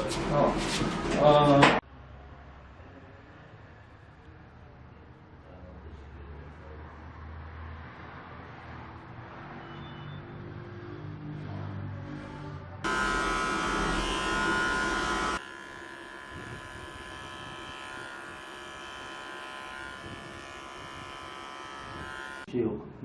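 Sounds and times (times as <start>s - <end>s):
electric hair clippers buzzing: 12.8s - 22.5s.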